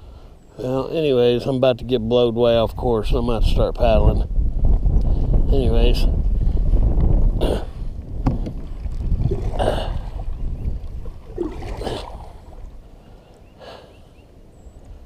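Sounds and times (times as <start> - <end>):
wind buffeting microphone: 0.9 - 13.6
paddle strokes swishing through water: 8.3 - 13.5.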